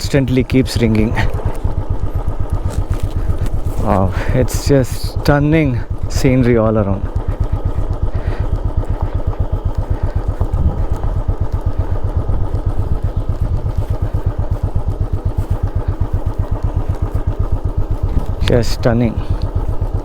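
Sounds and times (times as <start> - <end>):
motorcycle engine running at low revs: 0.0 - 20.0.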